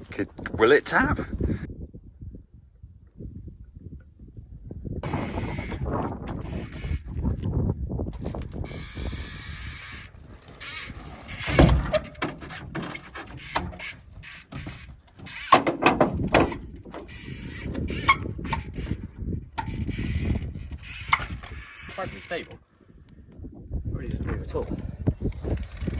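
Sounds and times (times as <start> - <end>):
bicycle freewheel ratchet clicking: 5.0 - 7.0, 8.6 - 11.6, 13.4 - 15.6, 16.5 - 19.0, 19.6 - 22.5
bike knocking against metal: 8.1 - 19.0.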